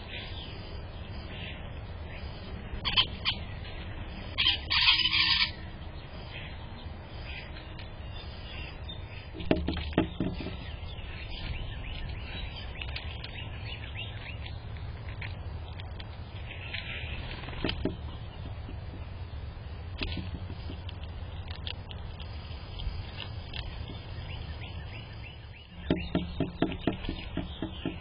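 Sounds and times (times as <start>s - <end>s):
small birds chirping: 0.0s - 28.0s
short knocks: 9.4s - 10.7s, 25.8s - 28.0s.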